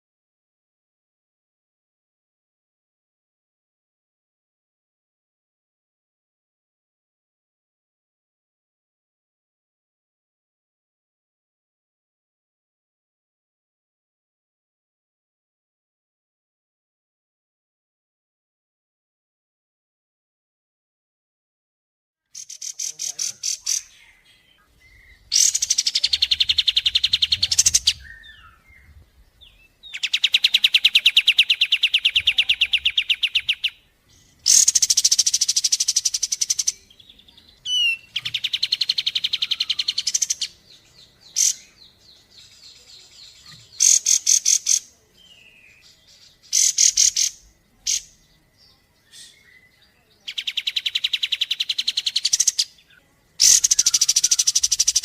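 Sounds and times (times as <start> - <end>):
high-pitched bird trills: 37.6 - 40.6, 53.4 - 55.0.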